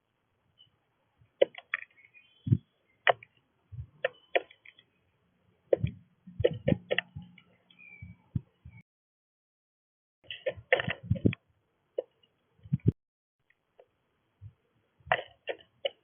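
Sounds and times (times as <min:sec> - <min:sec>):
faint high chirps: 0:01.8 - 0:05.1, 0:07.1 - 0:08.8.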